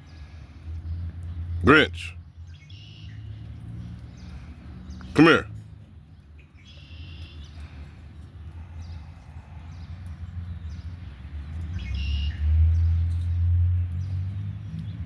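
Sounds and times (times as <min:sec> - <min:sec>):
bird chirps: 0:02.4 - 0:04.3, 0:06.4 - 0:07.8, 0:11.6 - 0:14.2.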